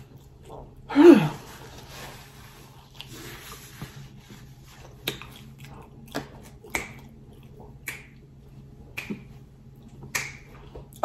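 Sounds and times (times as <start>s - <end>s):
mouth clicks while chewing: 4.9s - 11.0s.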